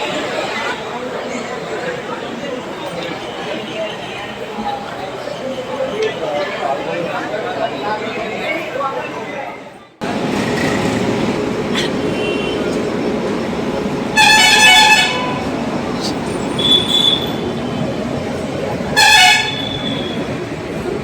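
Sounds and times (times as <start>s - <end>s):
traffic noise: 0.0s - 21.0s
vehicle horn honks: 12.1s - 12.8s, 14.1s - 15.5s, 16.4s - 17.5s, 18.9s - 20.2s.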